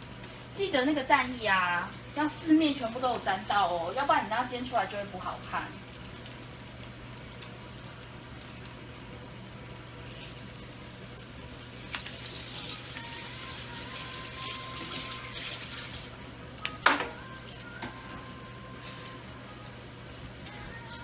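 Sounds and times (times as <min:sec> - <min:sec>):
vegetable slices sizzling in pan: 0:00.6 - 0:16.2
tap running at sink: 0:13.8 - 0:17.2.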